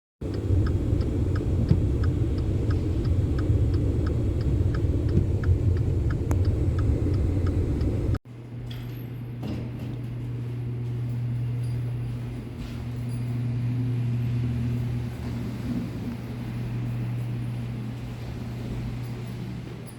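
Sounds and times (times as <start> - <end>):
faint regular ticking: 0.2 - 8.2
steady low hum: 0.2 - 19.9.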